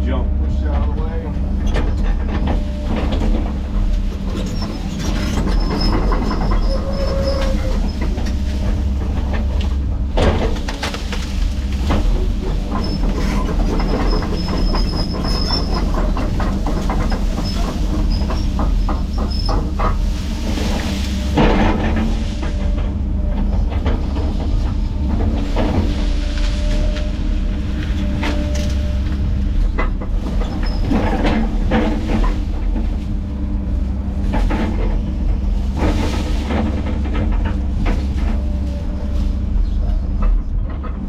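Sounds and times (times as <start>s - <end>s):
diesel engine drone: 0.0s - 41.0s
tracks clanking: 0.0s - 41.0s
high squeals from tracks: 4.2s - 9.6s, 12.2s - 21.4s.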